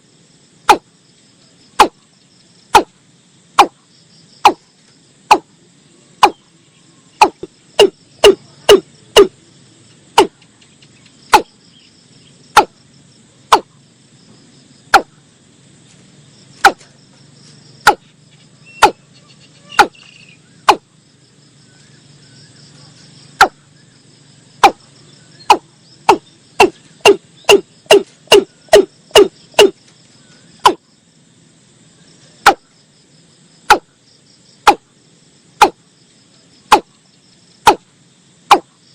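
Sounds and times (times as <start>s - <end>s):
insects chirring: 0.0s - 38.9s
bird calling sharp hollow notes: 6.2s - 6.5s, 7.2s - 9.4s, 10.2s - 11.6s, 12.6s - 12.8s, 13.5s - 13.7s, 17.8s - 20.9s, 23.4s - 23.8s, 25.4s - 29.8s.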